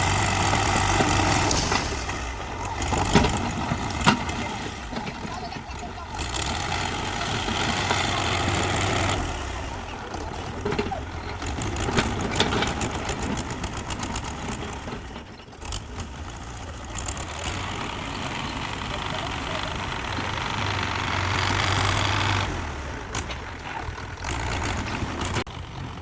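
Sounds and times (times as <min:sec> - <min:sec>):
heavy machine engine running: 0:00.0 - 0:26.0
sharp clanks and rattles: 0:00.0 - 0:26.0.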